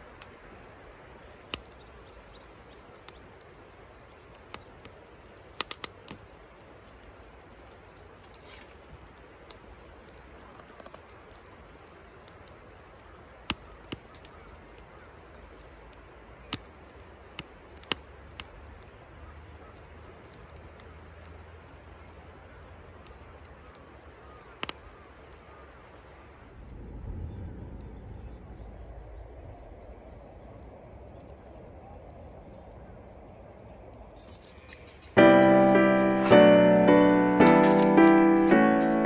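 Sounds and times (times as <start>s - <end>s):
faint fire hiss: 0.0s - 39.0s
firewood crackling and popping: 0.0s - 39.0s.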